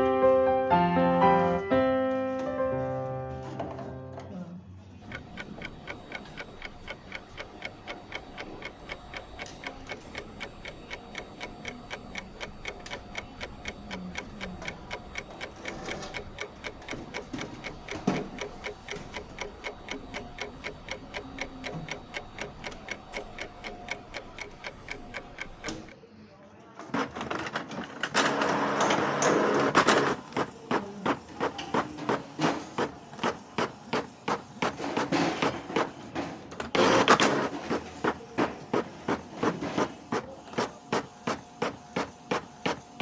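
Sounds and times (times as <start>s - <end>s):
mechanical ticking: 5.0s - 26.0s.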